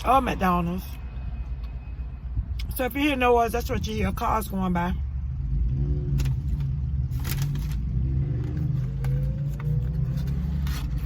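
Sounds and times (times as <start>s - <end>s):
cars going by: 3.5s - 11.0s
low engine rumble: 3.7s - 11.0s
car pulling away: 5.3s - 11.0s.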